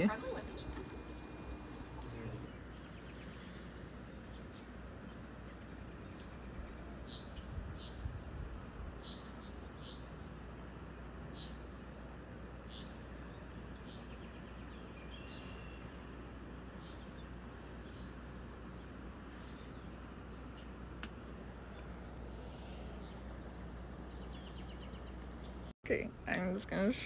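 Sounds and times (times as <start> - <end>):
steady background noise: 0.0 - 7.0
small birds chirping: 0.0 - 10.5, 11.2 - 25.7.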